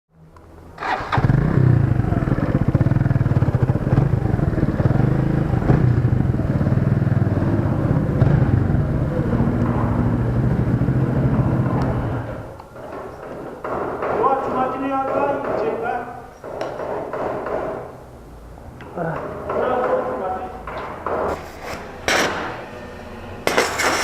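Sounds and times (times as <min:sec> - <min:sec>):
motorcycle engine running: 0:00.8 - 0:12.5.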